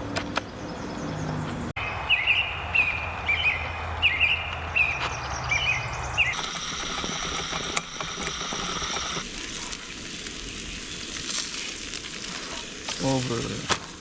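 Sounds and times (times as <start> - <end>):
pops and crackles: 6.8 - 14.0.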